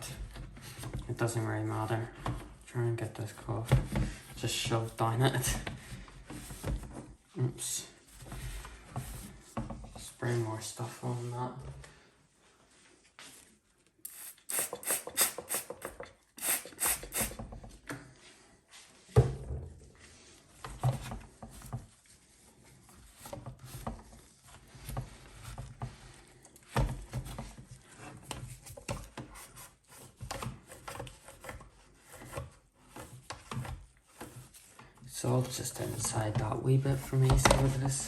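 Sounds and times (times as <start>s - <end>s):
trigger spray bottle squirting: 14.1s - 17.4s.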